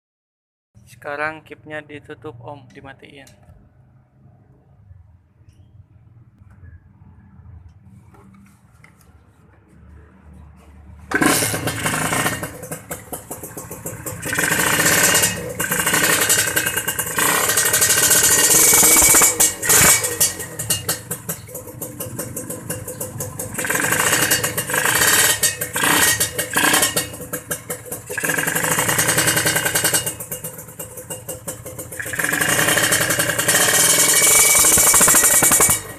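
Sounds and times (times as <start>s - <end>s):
motorcycle engine revving: 9.7s - 35.9s.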